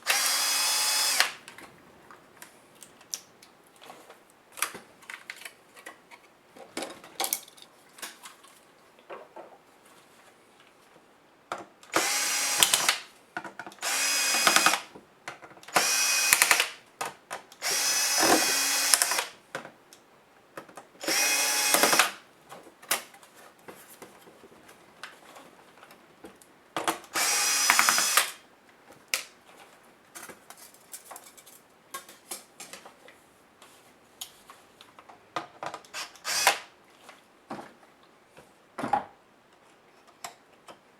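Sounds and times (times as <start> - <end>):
electric screwdriver running: 0.0 - 1.4, 12.0 - 13.0, 13.8 - 14.9, 15.8 - 16.7, 17.6 - 19.3, 21.0 - 22.2, 27.2 - 28.4, 36.0 - 36.6.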